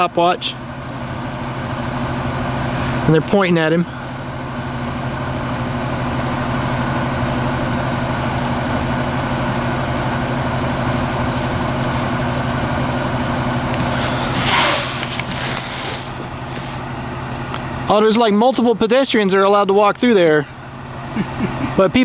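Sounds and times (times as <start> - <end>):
large vehicle engine idling: 0.0 - 22.0
short loud hiss: 14.3 - 16.2.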